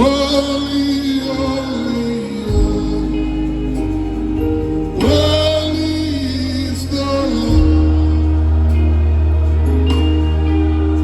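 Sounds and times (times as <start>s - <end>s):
band playing gospel music: 0.0s - 11.0s.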